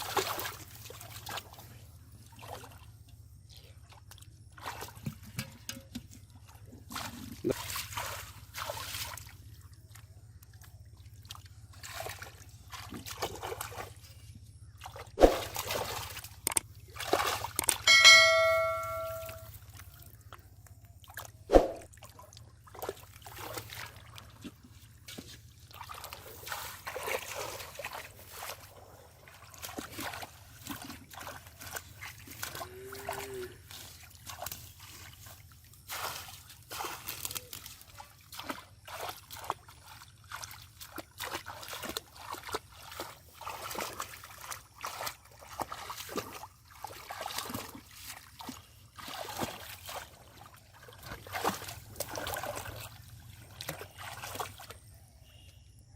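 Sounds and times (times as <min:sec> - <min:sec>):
sharp splash: 0:00.0 - 0:01.5, 0:07.0 - 0:09.3, 0:14.8 - 0:16.3, 0:16.9 - 0:19.5, 0:21.1 - 0:24.2, 0:25.7 - 0:28.6, 0:33.8 - 0:54.8
pond water splashing: 0:00.0 - 0:55.5.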